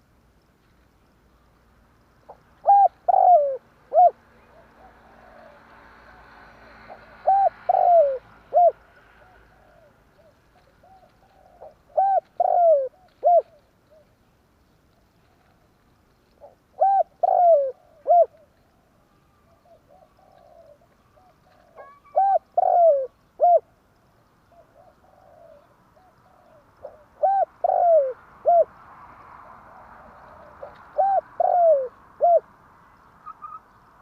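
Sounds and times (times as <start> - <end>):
dove cooing: 2.3 - 14.1, 16.4 - 18.5, 19.4 - 23.7, 24.5 - 28.7, 29.5 - 32.5.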